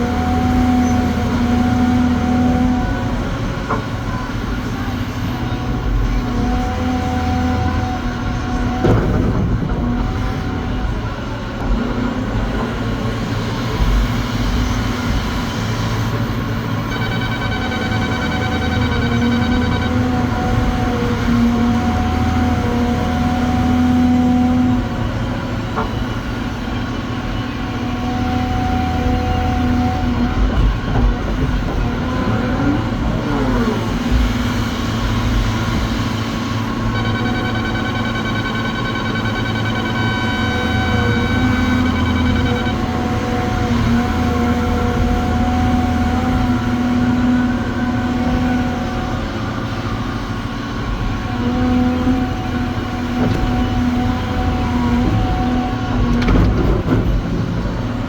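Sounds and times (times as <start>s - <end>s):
haul truck diesel engine: 0.0s - 58.0s
steady high tone: 16.8s - 20.4s, 36.9s - 43.4s.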